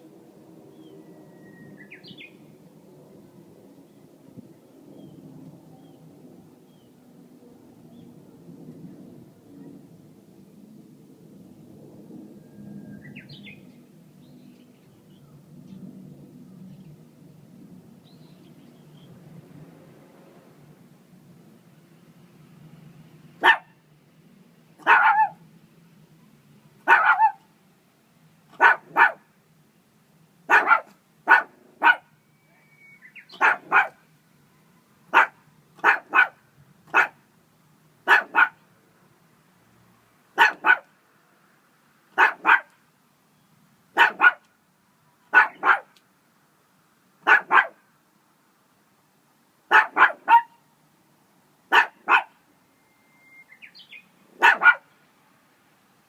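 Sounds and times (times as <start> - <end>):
dog barking: 23.4 - 23.8, 24.8 - 25.4, 26.8 - 27.5, 28.6 - 29.3, 30.5 - 32.2, 33.3 - 34.0, 35.1 - 37.2, 38.0 - 38.6, 40.4 - 40.9, 42.2 - 42.8, 44.0 - 44.5, 45.3 - 46.0, 47.2 - 47.8, 49.7 - 50.6, 51.7 - 52.4, 54.4 - 54.9.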